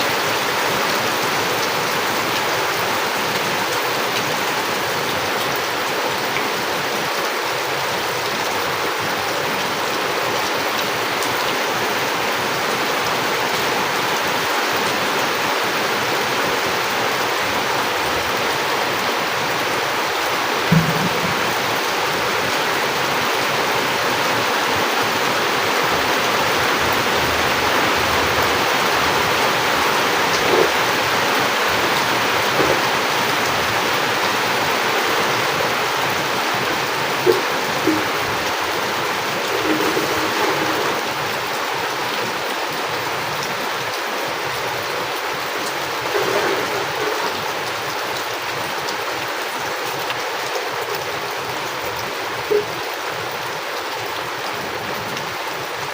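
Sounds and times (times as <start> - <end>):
heavy rain: 0.0 - 55.9
low thump: 20.7 - 21.6.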